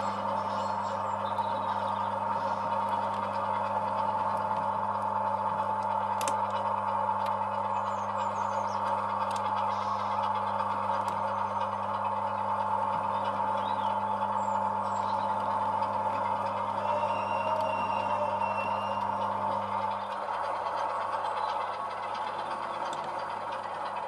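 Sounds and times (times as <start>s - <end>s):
model diesel locomotive engine: 0.0s - 24.0s
faint clicks: 8.8s - 9.6s, 22.7s - 23.2s.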